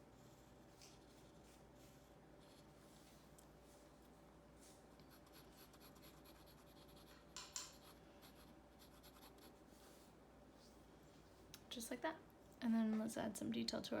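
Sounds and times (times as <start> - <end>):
pencil scratching on paper: 5.1 - 9.6.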